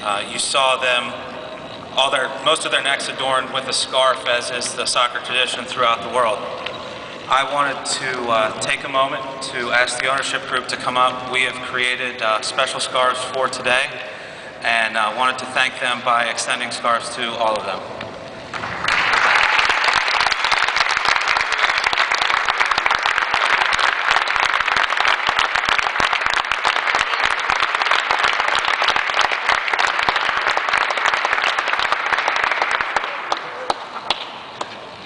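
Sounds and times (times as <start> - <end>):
crowd applauding: 18.5 - 34.7.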